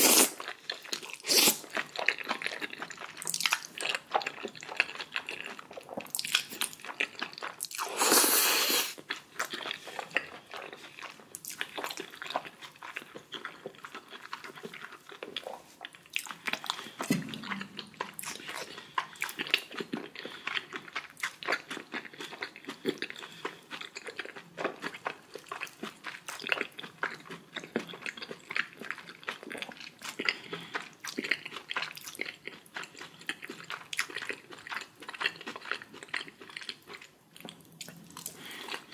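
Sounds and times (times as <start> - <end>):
person chewing food: 0.0 - 38.9
low thump: 17.1 - 17.7.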